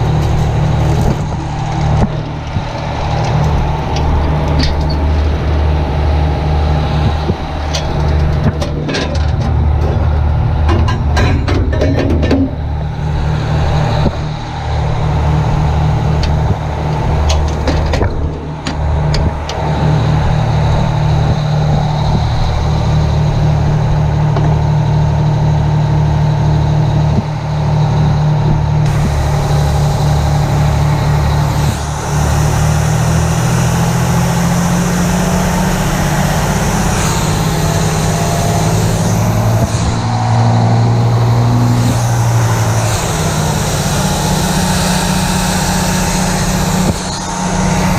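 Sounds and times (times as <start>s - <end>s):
fire truck diesel engine running: 0.0s - 47.9s.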